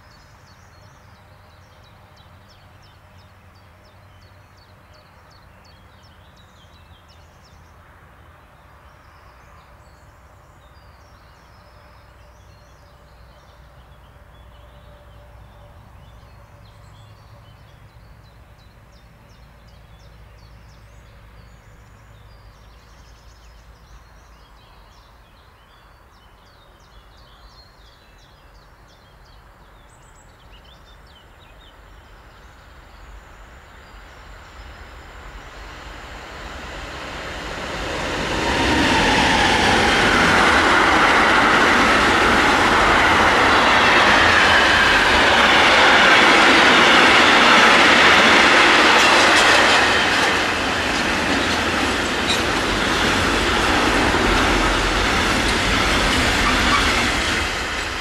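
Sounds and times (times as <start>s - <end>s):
electric train passing: 31.7s - 58.0s.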